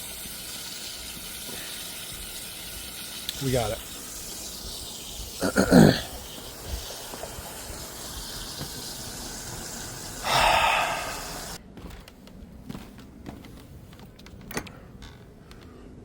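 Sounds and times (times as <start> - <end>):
water running: 0.0 - 11.6
faint clicks and knocks: 11.8 - 15.8.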